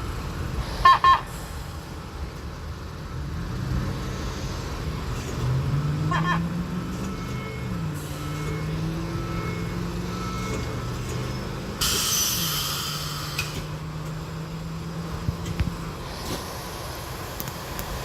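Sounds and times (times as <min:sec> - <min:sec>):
subway railcar low hum: 0:00.0 - 0:18.0
air hiss: 0:11.8 - 0:13.7.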